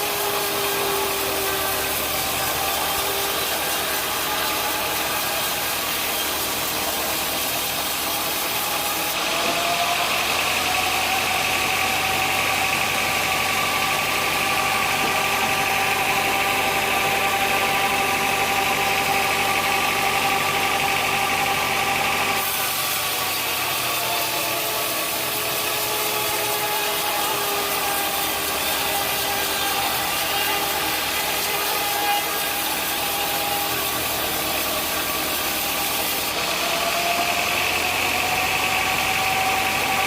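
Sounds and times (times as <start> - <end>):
saw cutting timber whine: 0.0 - 40.0
sawmill motor hum: 0.0 - 40.0.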